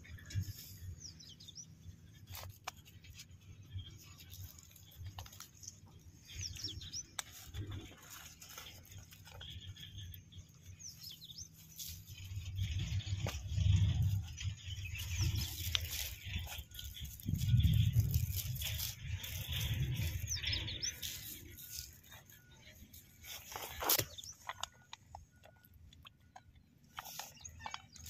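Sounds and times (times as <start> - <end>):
rustling: 2.1 - 25.7
low rumble: 11.6 - 22.2.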